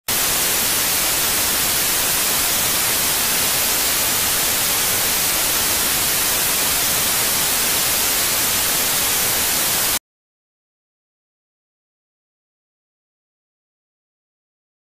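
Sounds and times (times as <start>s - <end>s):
static hiss: 0.1s - 10.0s.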